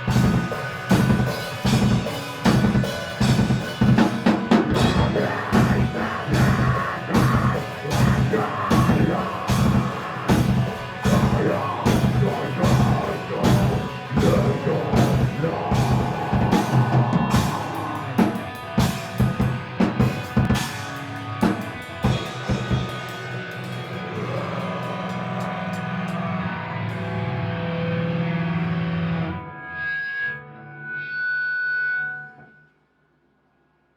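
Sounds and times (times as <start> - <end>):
drum kit beat: 0.0 - 26.5
rock music: 0.0 - 32.1
low bass tones: 4.7 - 20.6.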